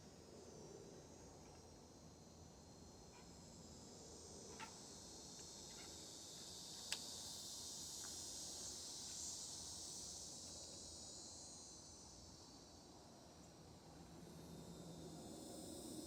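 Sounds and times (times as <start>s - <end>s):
insects trilling: 3.2s - 10.6s.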